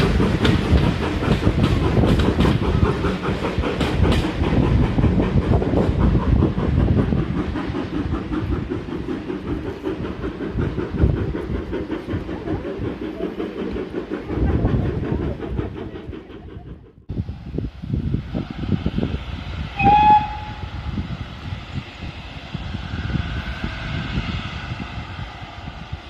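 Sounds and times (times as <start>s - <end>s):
train wheels clicking over rails: 0.0s - 17.1s.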